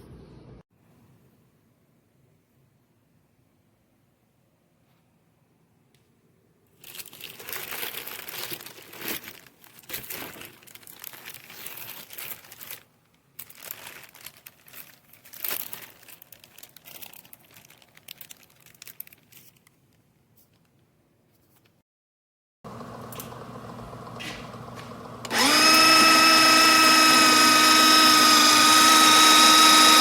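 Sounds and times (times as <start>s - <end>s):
crinkling and rustling: 6.7s - 21.8s.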